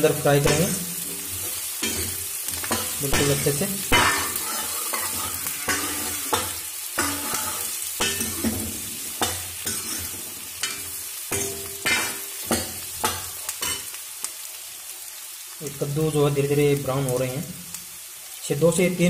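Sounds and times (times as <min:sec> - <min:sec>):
pumpkin sizzling in hot oil: 0:00.0 - 0:19.0
metal ladle scraping a pan: 0:00.4 - 0:13.9.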